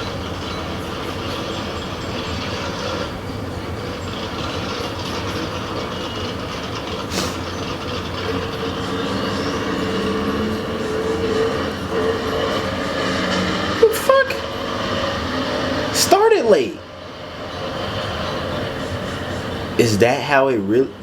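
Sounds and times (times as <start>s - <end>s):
race car engines running: 0.0s - 21.0s
faint rising whine: 7.1s - 21.0s.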